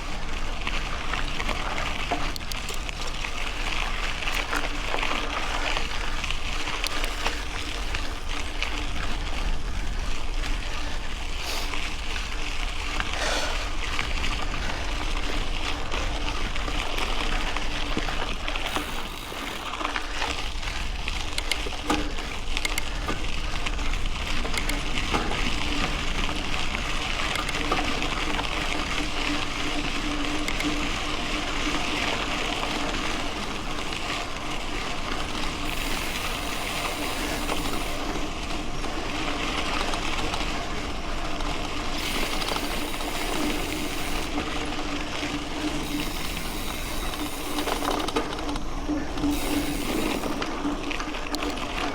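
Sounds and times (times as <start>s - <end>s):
bike clicks and rattles: 0.0s - 51.9s
bike tyres rolling on gravel: 0.0s - 51.9s.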